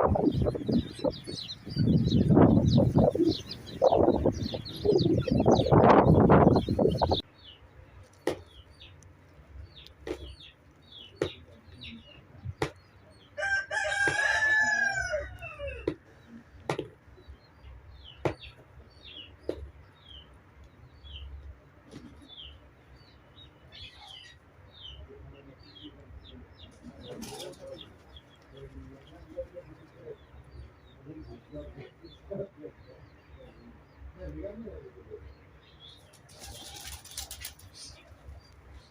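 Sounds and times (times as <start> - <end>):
small birds chirping: 0.0 - 38.9
rooster crowing: 13.4 - 15.9
sharp knocks: 18.2 - 18.6.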